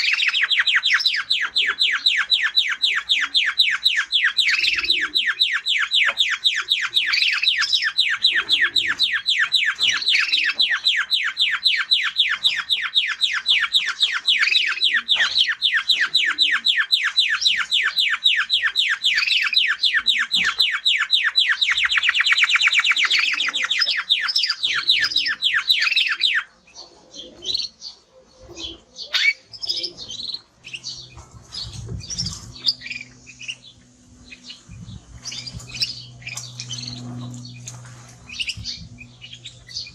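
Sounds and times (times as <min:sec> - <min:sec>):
canary trilling: 0:00.0 - 0:39.9
faint low hum: 0:26.6 - 0:39.9.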